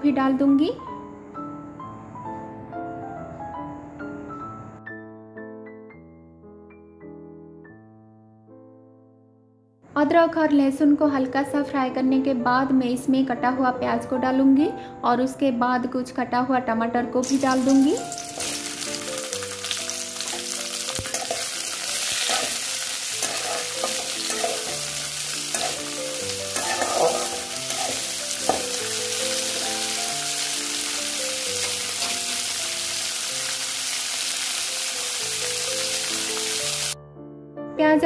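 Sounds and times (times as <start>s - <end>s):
faint music of slow held notes: 0.0s - 33.6s
oil sizzling: 17.2s - 37.0s
oil crackling and spattering: 17.4s - 33.6s.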